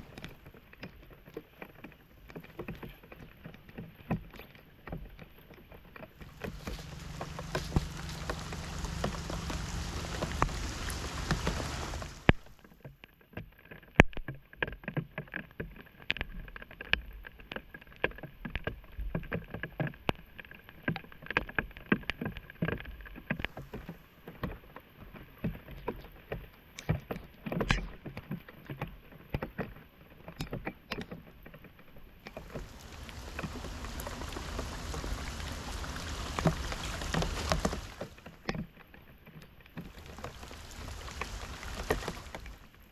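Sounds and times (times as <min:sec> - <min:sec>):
water rushing: 0:06.2 - 0:12.6, 0:32.3 - 0:38.4, 0:39.8 - 0:42.9
water splashing: 0:06.2 - 0:12.6, 0:32.3 - 0:38.5, 0:39.8 - 0:42.9.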